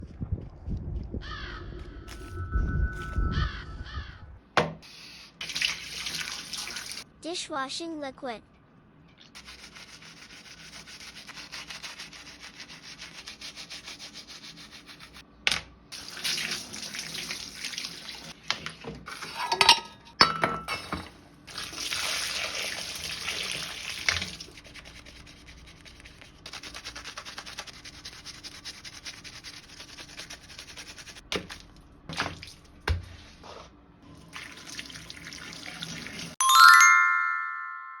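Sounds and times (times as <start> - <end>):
wet scrubbing: 9.4 - 15.2, 21.5 - 32.6
bright chime: 36.4 - 38.0.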